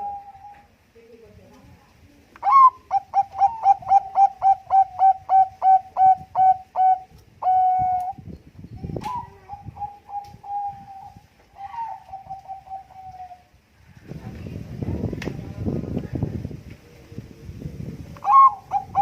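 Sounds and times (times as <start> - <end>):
dove cooing: 0.0 - 0.7, 2.4 - 8.2, 9.0 - 13.5, 18.2 - 19.0.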